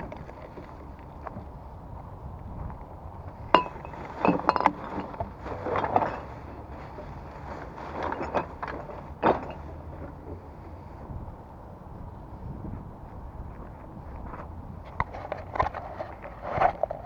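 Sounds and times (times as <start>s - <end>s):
glass bottles clinking: 3.4s - 10.0s.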